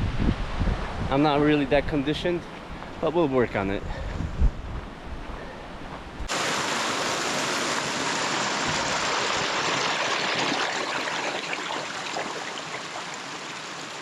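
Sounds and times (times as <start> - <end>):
stream water rushing: 6.3 - 14.0.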